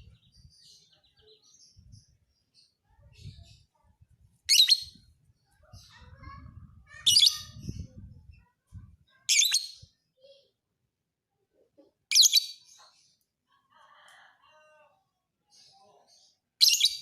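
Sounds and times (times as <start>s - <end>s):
lovebird shrill chattering: 4.5s - 5.0s.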